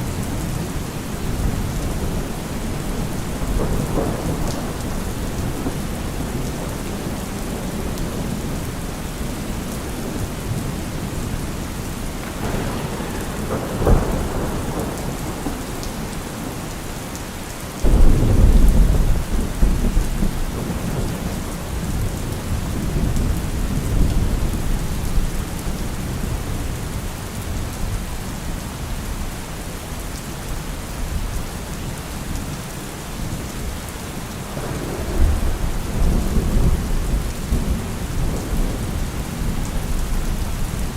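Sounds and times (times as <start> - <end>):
thunder rumbling: 0.0 - 26.6, 34.4 - 40.9
heavy rain: 0.0 - 40.9
thunder crack: 0.1 - 9.4, 11.5 - 17.1, 17.8 - 24.7, 34.5 - 40.9.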